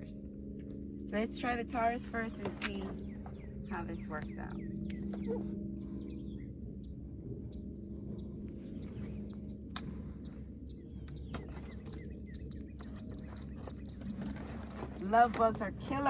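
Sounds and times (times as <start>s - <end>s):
high insect hum: 0.0s - 16.0s
faint bird chirps: 2.1s - 14.0s.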